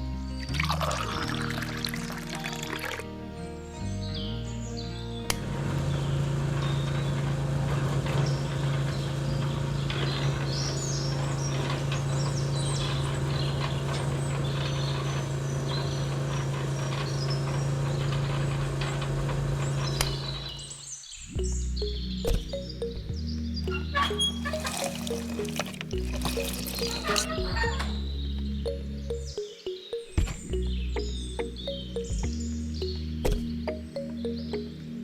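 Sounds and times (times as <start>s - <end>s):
birds chirping: 3.7s - 35.0s
small motor humming: 24.2s - 27.6s.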